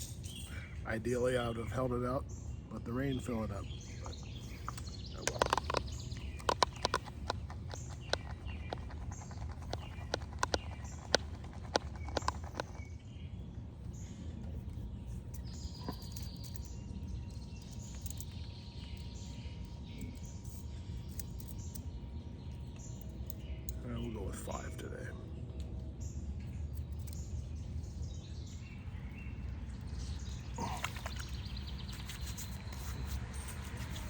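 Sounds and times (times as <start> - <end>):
faint birds chirping: 0.0 - 34.0
outdoor background noise: 0.0 - 34.0
shaving gear clicking: 4.7 - 12.9.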